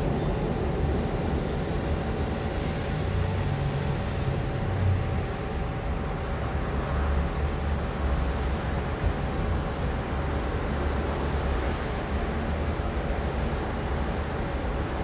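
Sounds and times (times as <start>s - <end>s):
train rumbling: 0.0s - 7.7s.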